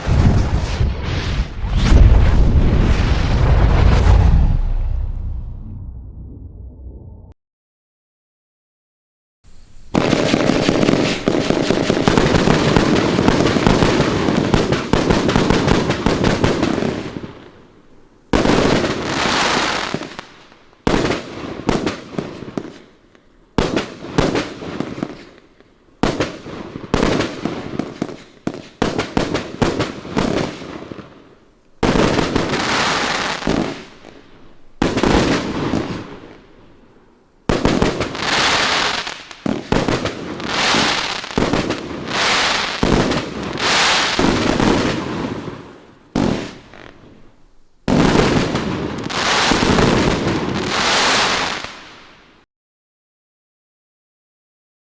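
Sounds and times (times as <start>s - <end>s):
fireworks barrage: 0.0s - 7.3s, 9.5s - 17.3s, 31.8s - 52.1s.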